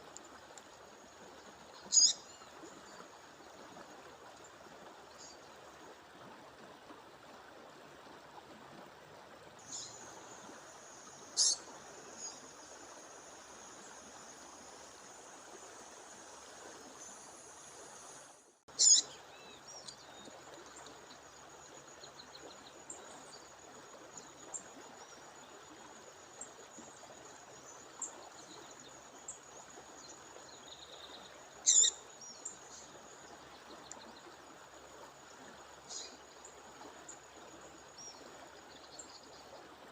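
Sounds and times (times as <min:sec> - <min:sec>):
bird chirping: 0:01.9 - 0:02.2, 0:11.4 - 0:11.6, 0:18.8 - 0:20.2, 0:31.7 - 0:32.0.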